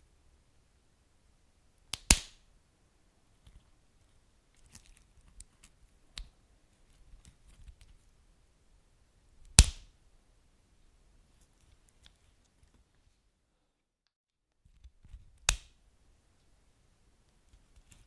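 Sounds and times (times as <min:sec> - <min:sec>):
wood fire crackling and popping: 0:01.9 - 0:02.4.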